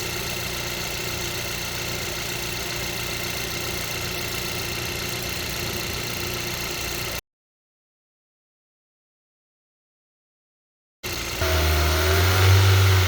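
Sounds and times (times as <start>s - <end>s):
car engine idling: 0.0s - 7.2s, 11.0s - 13.0s.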